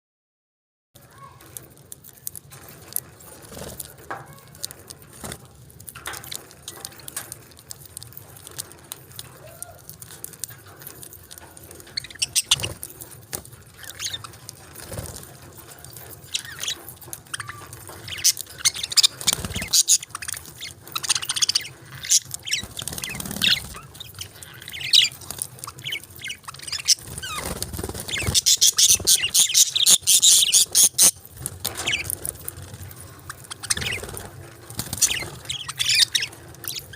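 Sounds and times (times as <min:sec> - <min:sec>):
budgerigars chirping: 0:11.9 - 0:12.8, 0:13.8 - 0:15.0, 0:16.3 - 0:32.2, 0:33.2 - 0:36.9.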